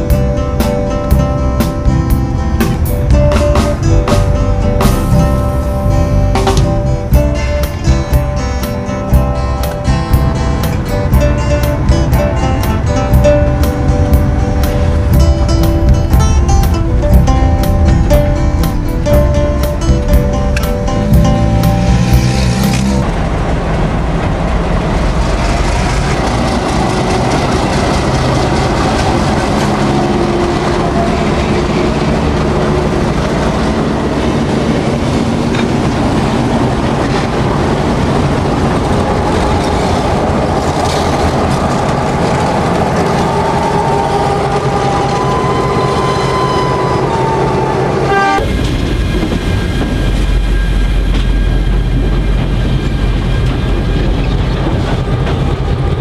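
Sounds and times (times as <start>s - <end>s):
wagons clattering on rails: 0.0s - 46.9s, 48.4s - 56.0s
diesel locomotive engine: 0.0s - 56.0s.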